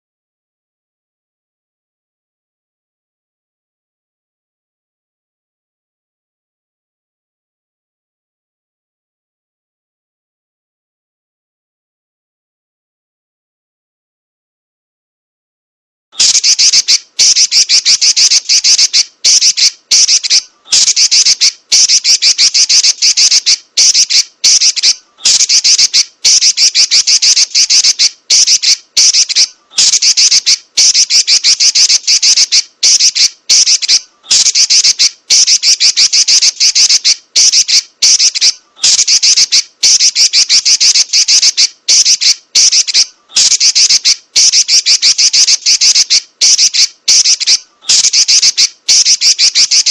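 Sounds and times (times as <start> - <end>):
bird chattering trill: 16.2 - 49.9.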